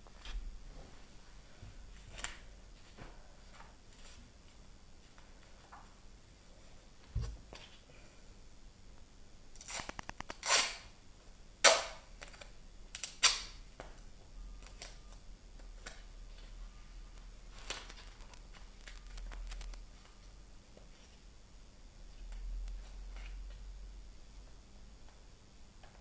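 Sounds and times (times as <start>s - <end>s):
duct tape ripping off roll: 9.6s - 10.9s, 13.0s - 13.6s, 17.6s - 19.8s.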